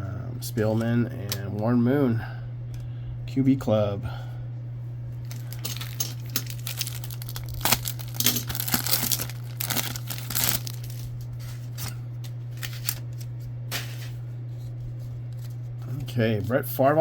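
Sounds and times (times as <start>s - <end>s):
low hum: 0.0s - 17.0s
wrapper tearing and crinkling: 5.2s - 13.3s
cards clicking and rustling: 5.3s - 14.1s.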